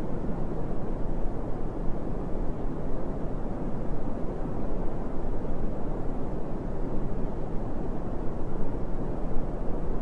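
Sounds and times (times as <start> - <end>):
brown noise hiss: 0.0 - 10.0.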